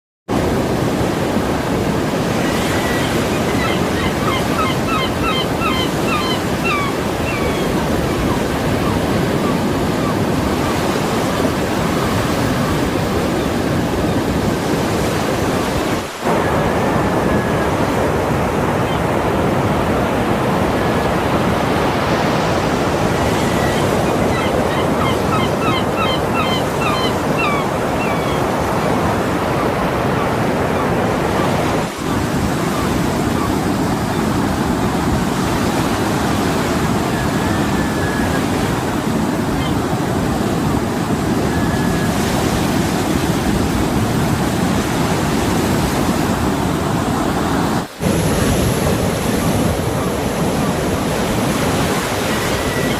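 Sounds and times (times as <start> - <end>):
surf: 0.3 - 52.9
wind: 0.3 - 52.9
gull calls: 2.5 - 11.4, 23.2 - 28.6.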